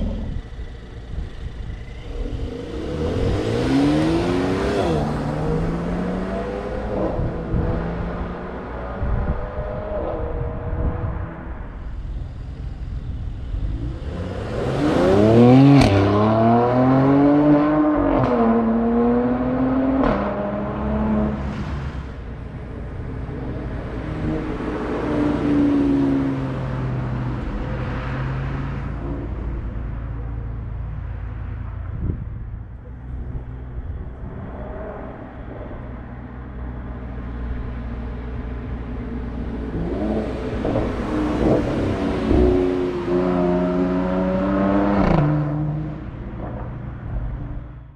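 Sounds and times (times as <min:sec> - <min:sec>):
car engine idling: 0:00.0 - 0:07.0, 0:11.6 - 0:14.5, 0:29.2 - 0:43.1
car engine revving: 0:00.0 - 0:47.9.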